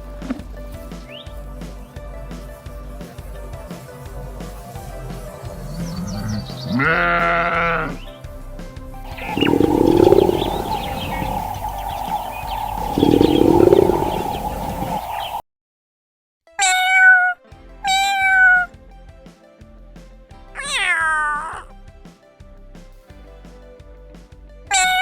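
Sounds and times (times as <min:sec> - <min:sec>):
cat meowing: 0:06.7 - 0:08.0
continuous noisy tone: 0:08.0 - 0:15.4.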